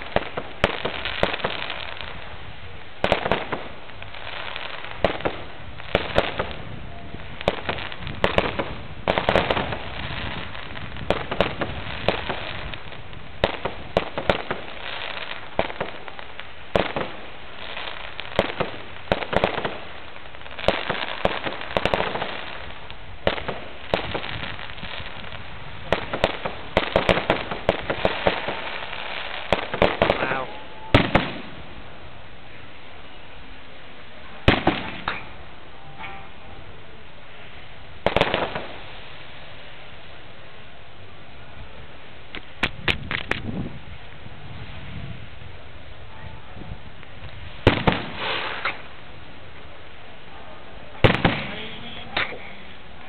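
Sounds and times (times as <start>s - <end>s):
firework crackling: 0.0s - 53.0s
firework shells bursting: 34.5s - 35.4s.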